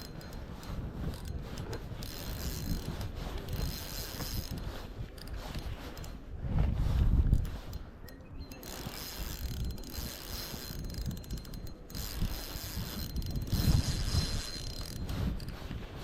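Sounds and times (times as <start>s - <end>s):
fishing reel gears whirring: 0.0s - 6.3s, 7.3s - 16.0s.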